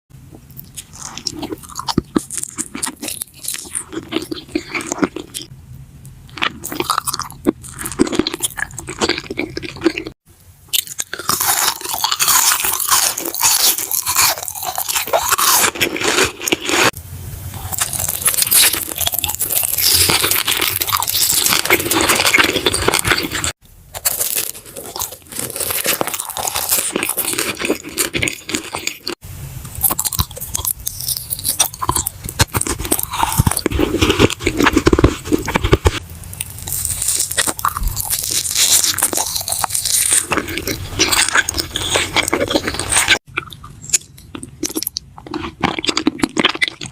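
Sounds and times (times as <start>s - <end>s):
crunching and chewing: 0.3s - 5.5s, 6.3s - 17.0s, 17.6s - 46.9s.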